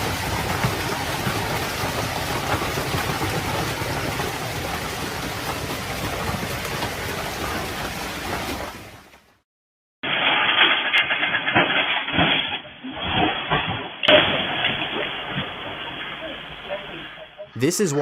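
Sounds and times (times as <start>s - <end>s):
hail striking hard surfaces: 0.0s - 8.4s, 10.1s - 12.6s.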